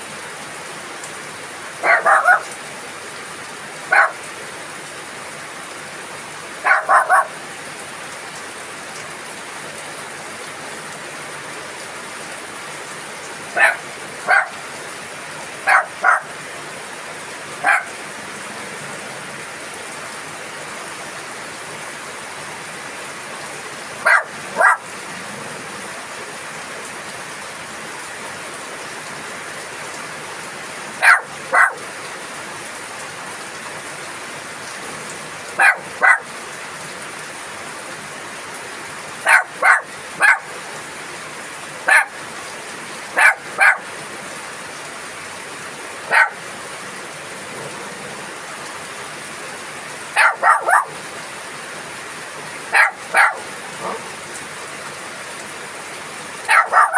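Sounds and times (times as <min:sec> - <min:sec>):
steady rain falling: 0:00.0 - 0:56.9
dog barking: 0:01.8 - 0:02.6, 0:03.9 - 0:04.3, 0:06.6 - 0:07.4, 0:13.5 - 0:14.6, 0:15.6 - 0:16.3, 0:17.6 - 0:18.0, 0:24.0 - 0:24.9, 0:31.0 - 0:31.9, 0:35.6 - 0:36.3, 0:39.2 - 0:40.5, 0:41.8 - 0:42.2, 0:43.1 - 0:43.9, 0:46.1 - 0:46.4, 0:50.1 - 0:51.0, 0:52.7 - 0:54.1, 0:56.5 - 0:56.9.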